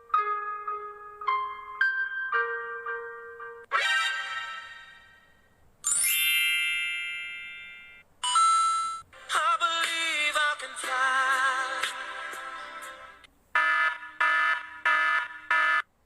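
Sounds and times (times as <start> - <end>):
shimmering chime with upward sweep: 5.8 - 8.0
bell-like ding: 5.9 - 9.0.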